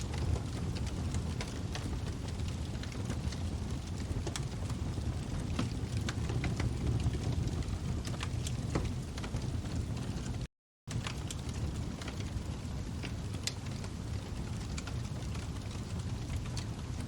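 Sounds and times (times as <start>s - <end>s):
burning wood crackling and popping: 0.0s - 17.0s
fire rumbling: 0.0s - 17.0s.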